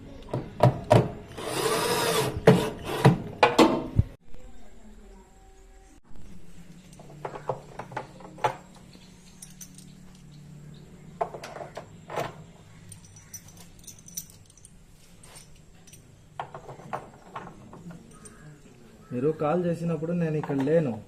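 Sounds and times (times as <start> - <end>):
small metal items clinking: 8.4 - 10.4, 12.8 - 18.5.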